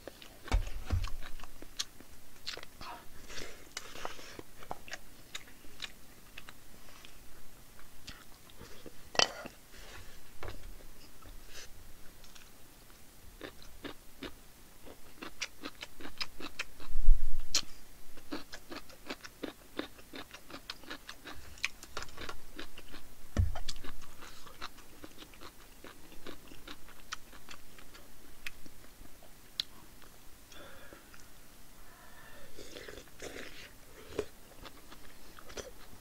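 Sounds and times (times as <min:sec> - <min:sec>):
dull thumps: 0:00.5 - 0:01.3, 0:23.3 - 0:23.7
chewing crunchy radish: 0:13.4 - 0:16.9, 0:17.5 - 0:30.2, 0:32.6 - 0:36.0.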